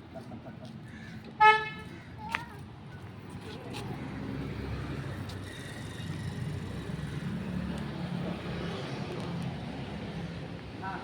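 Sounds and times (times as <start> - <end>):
road traffic noise: 0.0 - 11.0
vehicle engine humming: 2.9 - 11.0.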